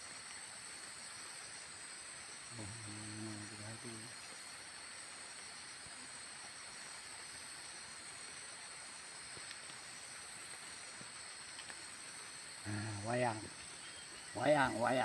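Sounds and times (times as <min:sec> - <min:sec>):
outdoor background hiss: 0:00.0 - 0:15.0
faint ticks: 0:05.8 - 0:14.3.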